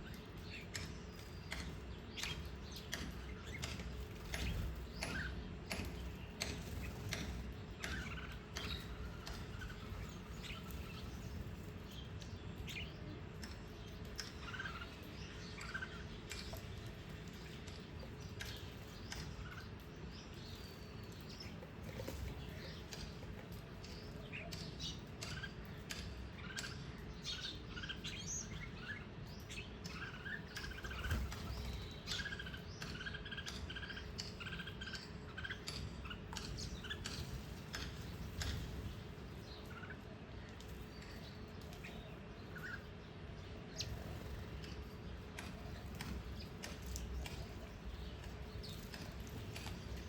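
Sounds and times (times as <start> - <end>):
small birds chirping: 0.0 - 50.0
sharp ticks: 12.2 - 20.6, 22.4 - 27.5.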